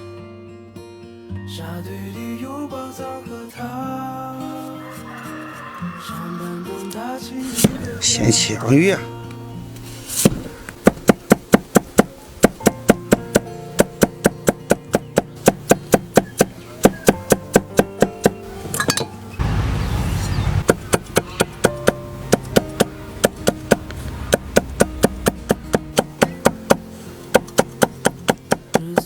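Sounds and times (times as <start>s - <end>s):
background music: 0.0s - 19.4s, 20.7s - 29.0s
knife chopping on cutting board: 10.2s - 18.4s, 20.7s - 26.8s, 27.4s - 29.0s
brief rush of noise: 19.4s - 20.7s.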